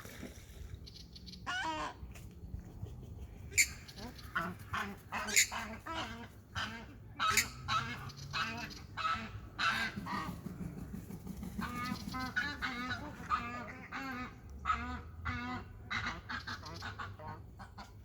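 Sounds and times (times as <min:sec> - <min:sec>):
waterfowl calling: 0:03.6 - 0:10.4.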